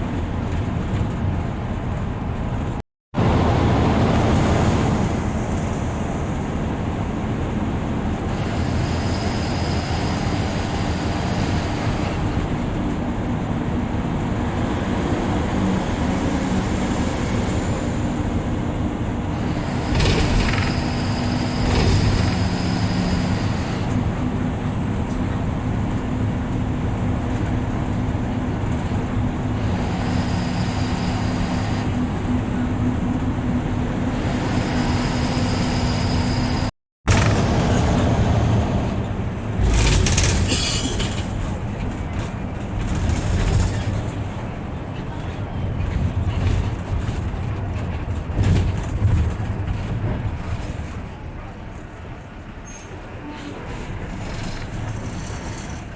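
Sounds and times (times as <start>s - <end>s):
bus engine and road noise: 0.0s - 55.9s
loud jolts: 19.4s - 23.6s.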